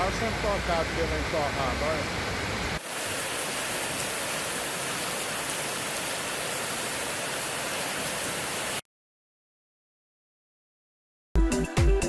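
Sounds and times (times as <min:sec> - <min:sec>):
floodwater rushing: 0:00.0 - 0:08.8
heavy rain: 0:00.0 - 0:08.8.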